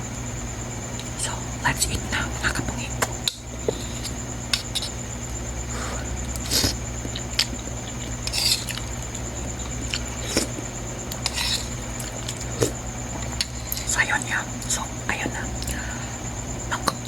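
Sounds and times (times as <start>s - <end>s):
faint high whine: 0.0s - 17.0s
steady low hum: 0.0s - 17.0s
noodles slurped: 5.7s - 12.8s.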